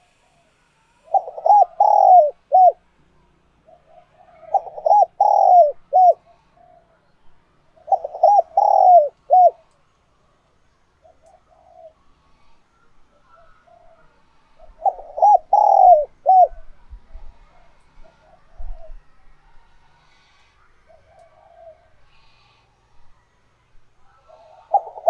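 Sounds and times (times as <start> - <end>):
dove cooing: 0.0 - 2.8, 3.6 - 7.1, 7.8 - 9.7, 11.0 - 12.1, 13.2 - 19.0, 20.0 - 22.6, 24.1 - 25.0.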